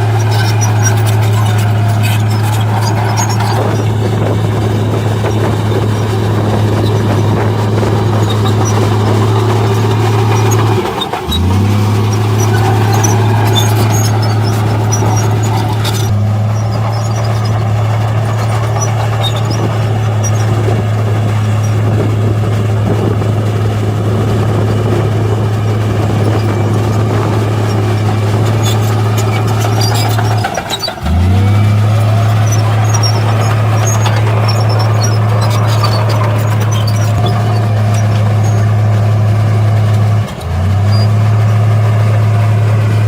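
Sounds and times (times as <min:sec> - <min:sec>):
heavy diesel engine humming: 0:00.0 - 0:43.0.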